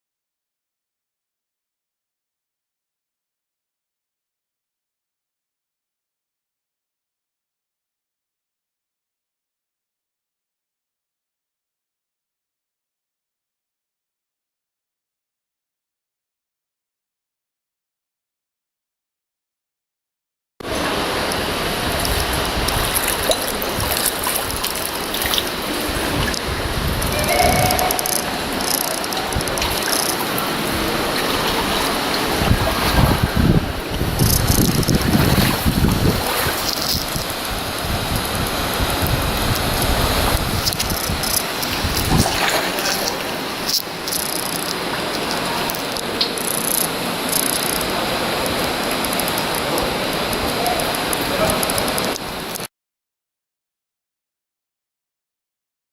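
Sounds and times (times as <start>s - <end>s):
creek water flowing: 20.6s - 52.7s
small clicks and knocks: 27.9s - 30.4s, 34.2s - 35.0s, 40.6s - 47.9s, 49.0s - 49.7s.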